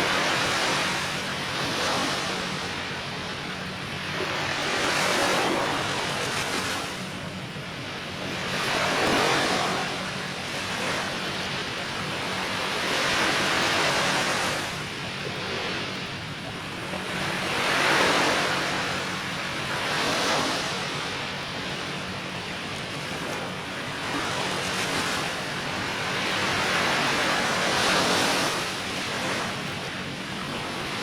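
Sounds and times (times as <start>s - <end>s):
surf washing onto a beach: 8.2s - 15.8s, 16.8s - 22.0s.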